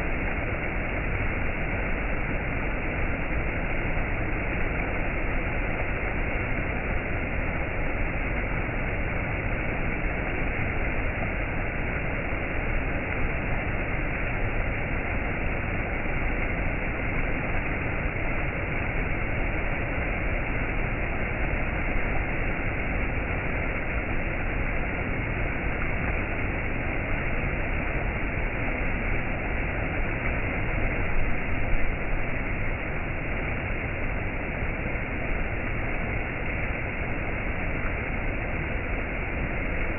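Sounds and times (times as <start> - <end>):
waterfall rushing and splashing: 0.0 - 39.9.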